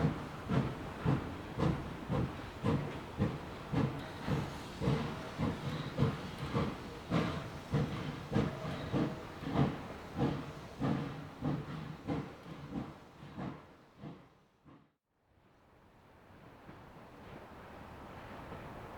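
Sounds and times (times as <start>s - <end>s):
steam hissing: 0.0s - 13.6s
steam locomotive chuffing: 0.0s - 14.9s.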